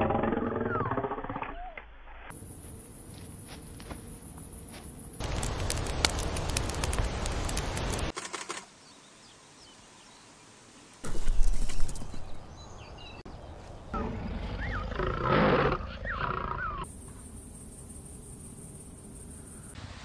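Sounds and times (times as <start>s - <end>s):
wind: 0.0s - 20.0s
birds chirping: 8.8s - 19.8s.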